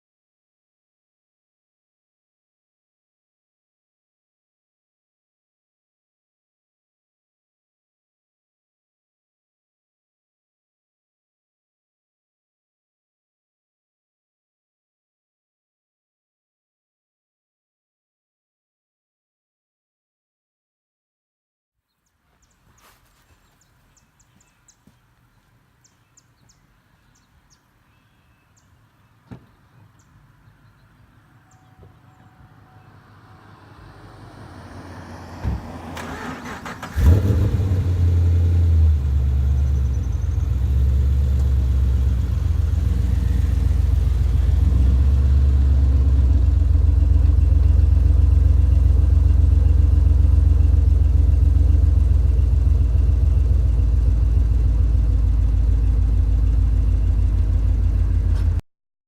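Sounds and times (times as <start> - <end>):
car engine starting and idling: 31.6 - 58.6.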